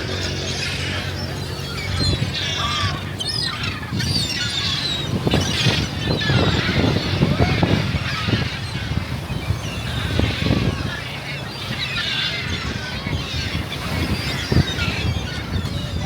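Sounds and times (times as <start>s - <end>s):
gulls calling: 0.0s - 16.0s.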